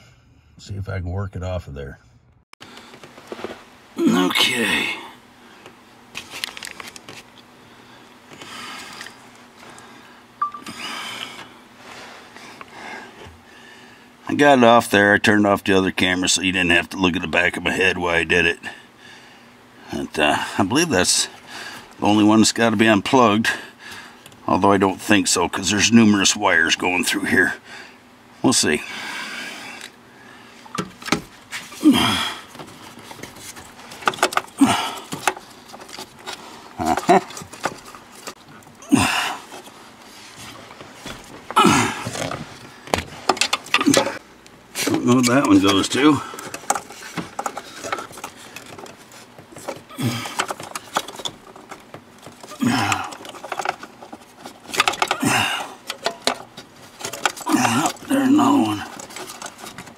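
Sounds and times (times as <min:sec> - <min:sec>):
rustling: 0:39.4 - 0:55.2, 0:55.8 - 0:59.9
hands clicking wiring connectors: 0:44.8 - 0:59.9.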